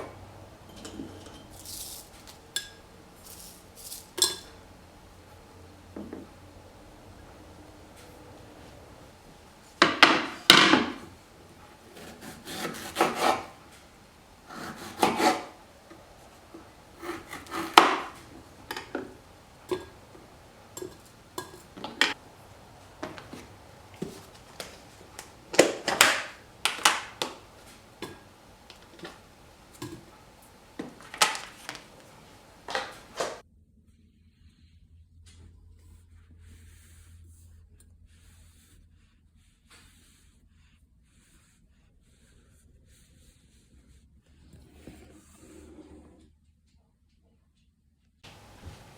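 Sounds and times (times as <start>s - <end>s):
utensil scraping on wooden board: 11.8s - 13.9s, 14.5s - 22.2s.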